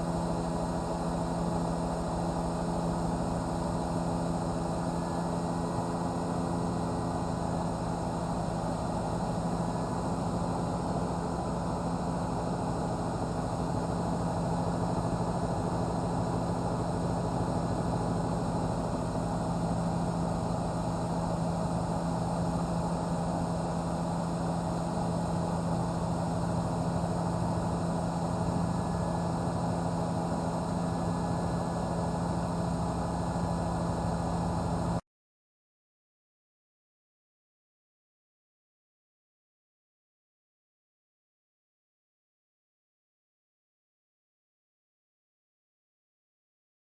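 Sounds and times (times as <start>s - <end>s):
helicopter engine and rotors drone: 0.0s - 35.0s.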